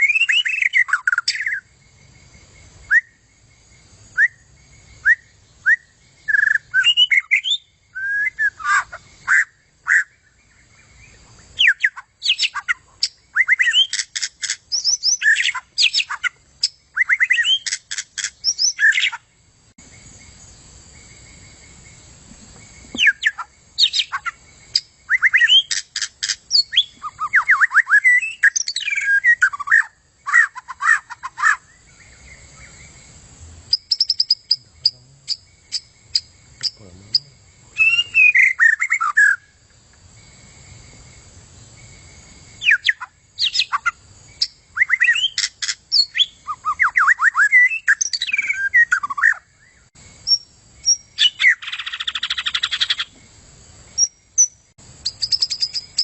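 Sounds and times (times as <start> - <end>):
bird singing whistles and chatter: 2.9 - 3.2, 4.2 - 10.1, 11.6 - 19.2, 22.9 - 31.6, 33.7 - 39.5, 42.6 - 49.4.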